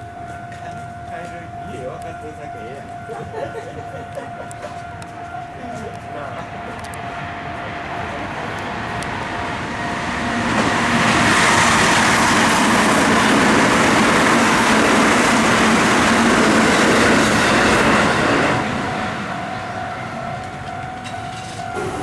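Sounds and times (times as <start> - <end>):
train rumbling past: 0.0 - 22.0.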